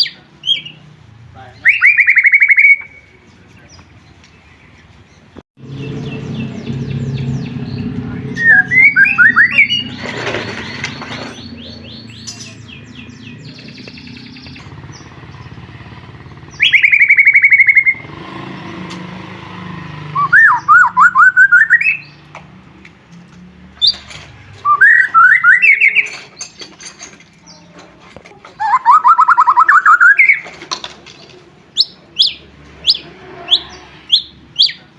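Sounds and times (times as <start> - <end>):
soft bird chirps: 1.5 - 19.2
bird warbling whistled song: 1.6 - 3.2, 5.8 - 18.2, 20.1 - 22.2, 24.6 - 26.5, 28.6 - 30.5, 31.8 - 34.8.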